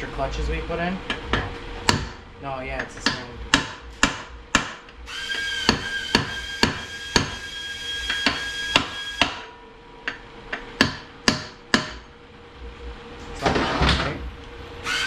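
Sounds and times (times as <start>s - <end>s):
hammer tapping on metal: 1.1s - 2.2s, 2.8s - 4.9s, 5.6s - 7.4s, 10.0s - 12.1s.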